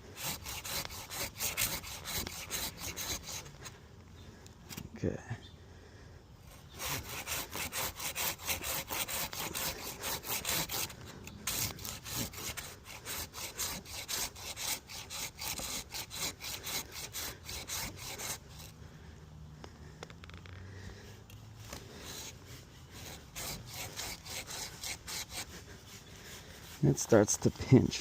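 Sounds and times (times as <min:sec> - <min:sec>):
hand saw cutting wood: 0:00.0 - 0:03.7, 0:06.5 - 0:18.8, 0:21.6 - 0:28.0.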